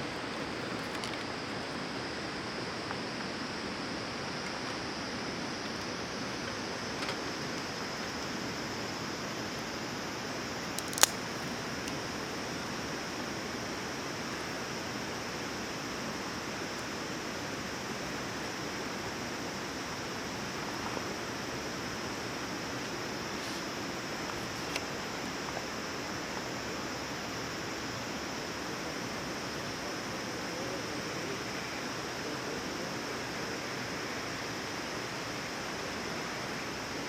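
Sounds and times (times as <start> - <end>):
campfire hissing: 0.0 - 37.0
fire crackles and pops: 10.5 - 12.1.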